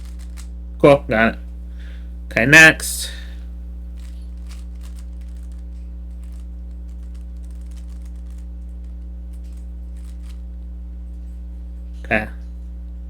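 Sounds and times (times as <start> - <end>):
puzzle cube plastic clicks: 0.0 - 0.5, 3.9 - 10.4
low hum: 0.0 - 13.0.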